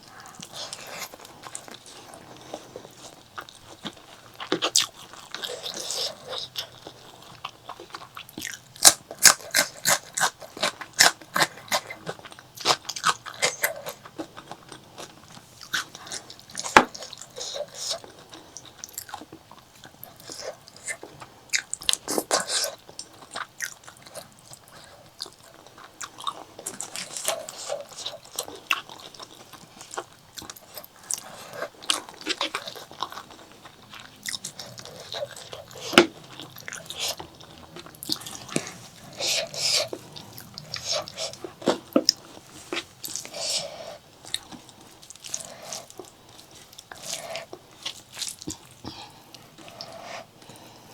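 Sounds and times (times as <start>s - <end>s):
close chewing and biting: 0.0s - 50.9s.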